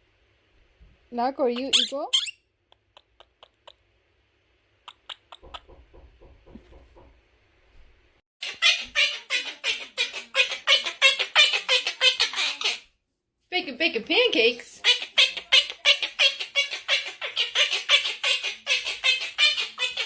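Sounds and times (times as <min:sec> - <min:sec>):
parrot chattering: 0:01.5 - 0:03.8, 0:04.9 - 0:05.6, 0:08.4 - 0:12.9, 0:14.8 - 0:20.0.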